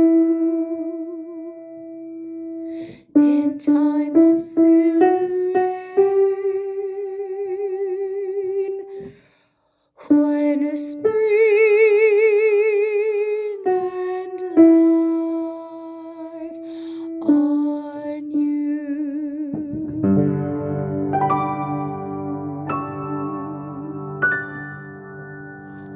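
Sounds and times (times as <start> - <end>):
woman singing with vibrato: 0.0 - 1.9, 3.2 - 9.1, 10.0 - 21.1.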